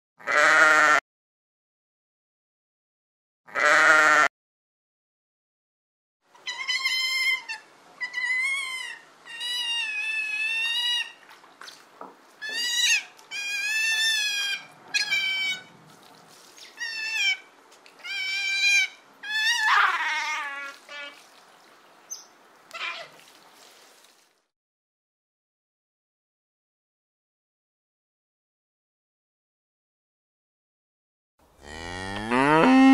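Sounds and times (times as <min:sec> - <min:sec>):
sea otter squealing calls: 0:06.4 - 0:11.2, 0:12.4 - 0:15.7, 0:16.6 - 0:21.2, 0:22.1 - 0:23.2.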